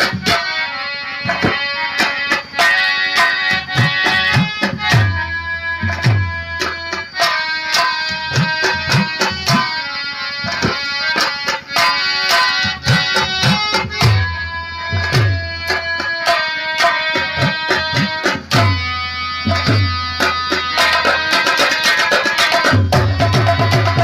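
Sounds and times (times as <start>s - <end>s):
harmonium melody: 0.0s - 24.0s
fast hand drumming: 10.5s - 18.9s, 19.5s - 24.0s.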